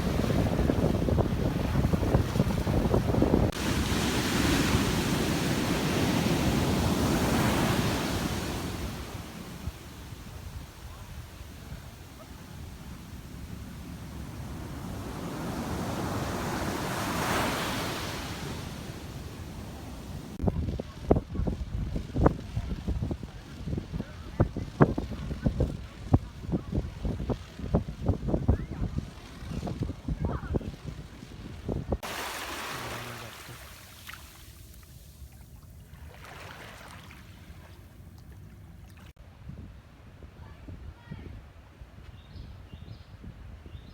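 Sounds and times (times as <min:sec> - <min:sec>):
wave breaking on beach: 0:00.0 - 0:21.3, 0:32.0 - 0:35.2
wind on microphone: 0:00.0 - 0:34.2, 0:39.0 - 0:43.9
low rumble of the sea: 0:00.0 - 0:42.0.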